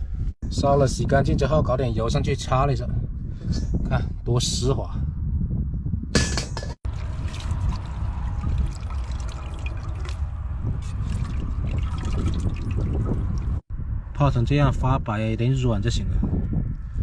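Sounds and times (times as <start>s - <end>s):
steady low rumble: 2.8s - 17.0s
water trickling and splashing: 6.8s - 13.6s.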